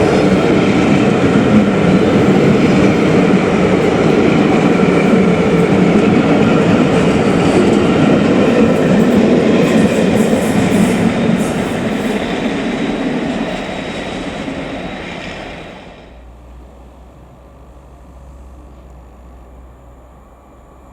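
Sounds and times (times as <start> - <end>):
train wheels rushing on rails: 0.0 - 18.8.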